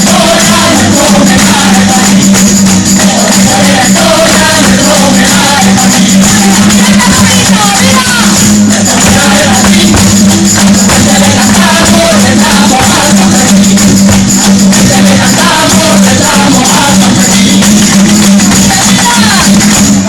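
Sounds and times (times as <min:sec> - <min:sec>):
rhythmic percussion: 0:00.0 - 0:20.0
tambourine: 0:00.0 - 0:20.0
voices singing: 0:00.0 - 0:20.0.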